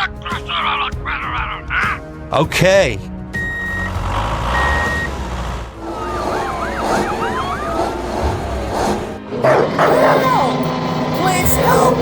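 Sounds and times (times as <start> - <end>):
steady low hum: 5.8 - 9.2.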